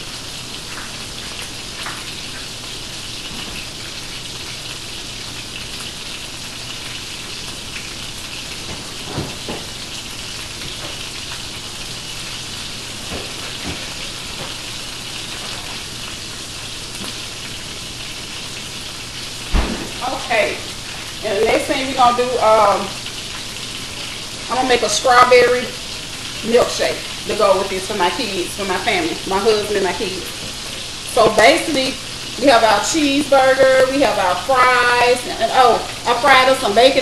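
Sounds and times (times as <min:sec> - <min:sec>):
patties sizzling in a pan: 0:00.0 - 0:37.0.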